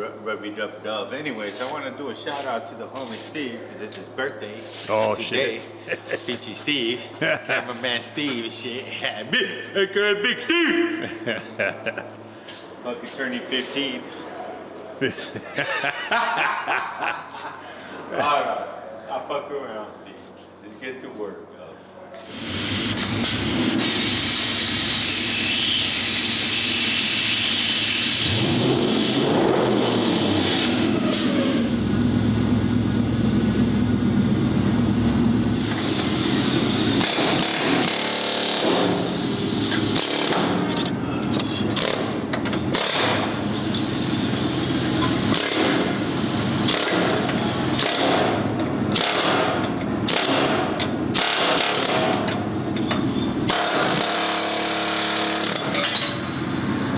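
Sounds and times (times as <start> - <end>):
short sharp tool bursts: 22.2 - 31.9, 35.6 - 40.6
power tool running: 22.2 - 40.9, 42.7 - 49.5, 53.5 - 55.8.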